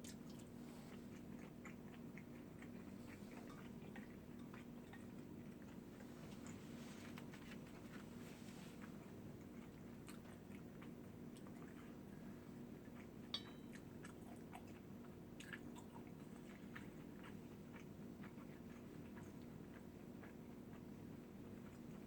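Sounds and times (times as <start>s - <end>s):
person chewing food: 0.0s - 22.0s
sharp clink: 13.3s - 13.8s.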